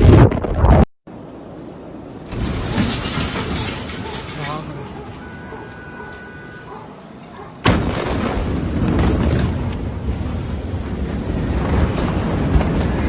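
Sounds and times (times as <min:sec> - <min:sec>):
wind buffeting microphone: 0:07.5 - 0:13.0.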